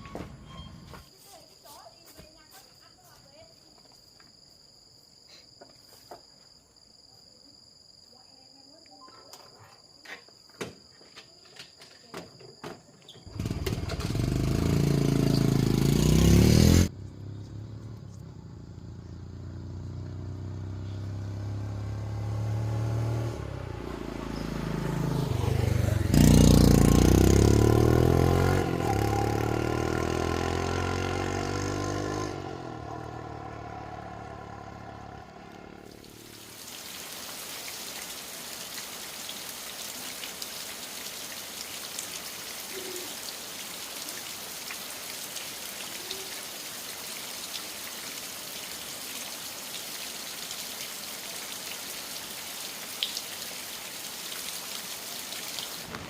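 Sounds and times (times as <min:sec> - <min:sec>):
motorcycle engine starting and revving: 0:13.2 - 0:36.5.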